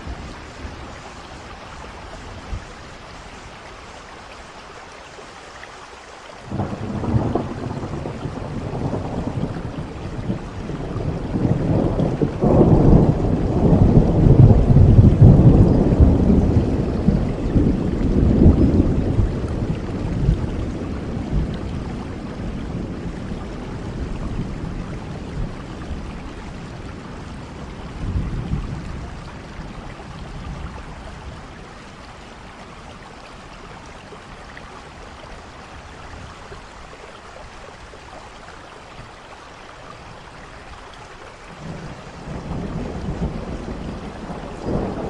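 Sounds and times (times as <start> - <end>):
rain falling: 0.0 - 45.0
thunder rumbling: 6.5 - 31.8, 41.5 - 45.0.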